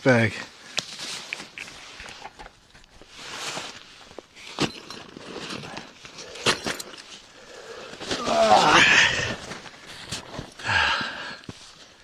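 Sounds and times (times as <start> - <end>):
clothing rustling: 0.9 - 10.6
backpack being taken off: 3.2 - 7.2.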